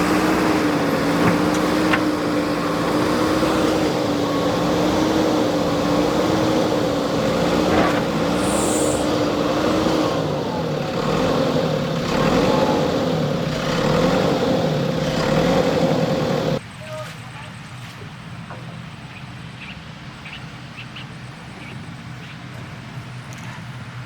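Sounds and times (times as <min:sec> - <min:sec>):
diesel engine running: 0:00.0 - 0:16.6.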